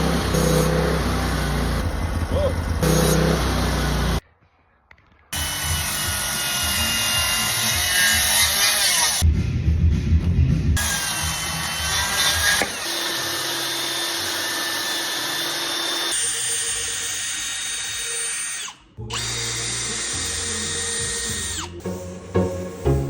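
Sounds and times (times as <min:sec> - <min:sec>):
power tool motor whining: 0:00.0 - 0:04.2, 0:05.4 - 0:09.2, 0:10.8 - 0:22.1
rhythmic beats: 0:19.0 - 0:23.0.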